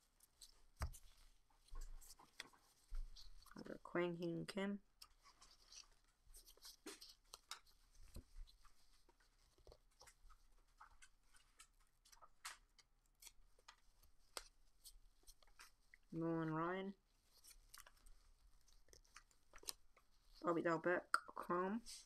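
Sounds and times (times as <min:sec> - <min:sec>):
trading cards clicking and rustling: 0:05.0 - 0:15.8, 0:17.3 - 0:20.4.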